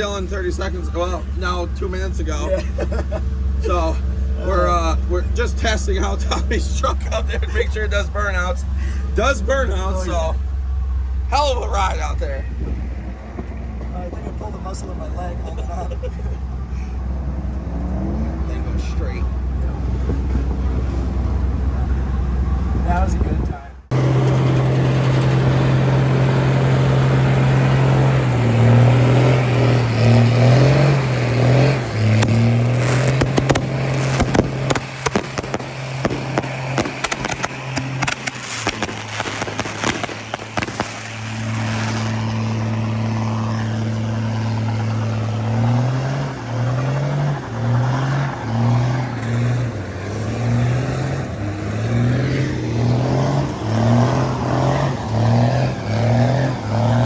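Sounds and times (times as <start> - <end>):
engine revving in a burnout: 0.0 - 57.0
crackling: 23.8 - 57.0.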